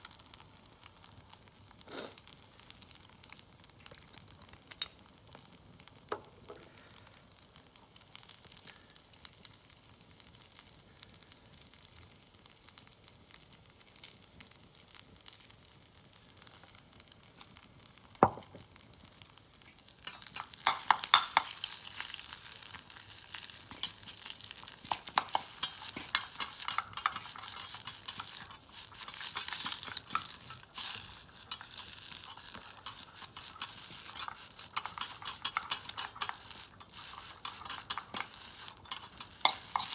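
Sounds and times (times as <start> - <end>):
food sizzling in a wok: 0.0 - 39.9
utensil clinking against pan: 20.0 - 22.2, 23.7 - 39.9.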